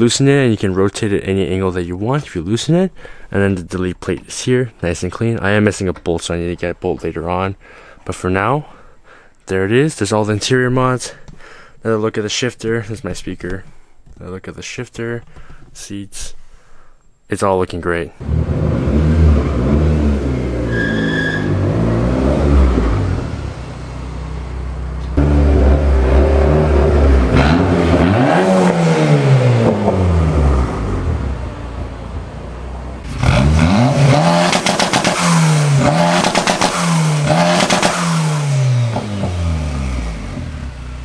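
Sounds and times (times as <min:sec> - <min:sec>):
car engine revving past: 0:18.2 - 0:32.0, 0:32.6 - 0:41.0.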